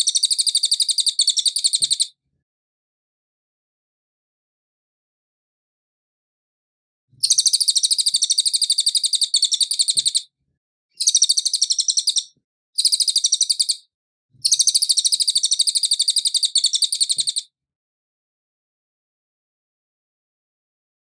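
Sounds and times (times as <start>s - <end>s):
bird trilling chatter: 7.2s - 10.2s, 11.0s - 13.8s, 14.5s - 17.4s.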